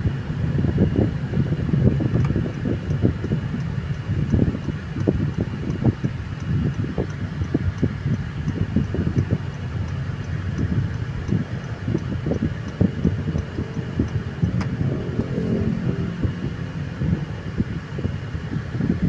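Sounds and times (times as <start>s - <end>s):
road and engine rumble: 0.0s - 19.0s
low thumps: 7.0s - 18.2s.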